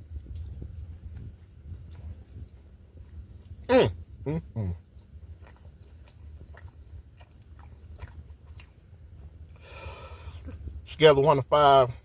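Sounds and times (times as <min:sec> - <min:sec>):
man chewing crunchy food: 0:00.0 - 0:10.9
man humming with enjoyment: 0:03.7 - 0:04.8.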